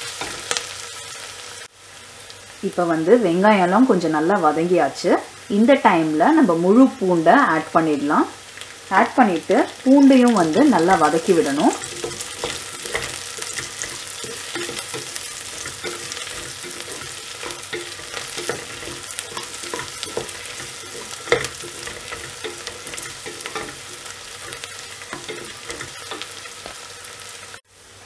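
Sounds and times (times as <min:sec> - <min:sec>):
vegetables sizzling in a pot: 0:00.0 - 0:28.0
wooden spoon scraping a pot: 0:10.5 - 0:26.8
spoon knocking on pot: 0:11.7 - 0:26.8.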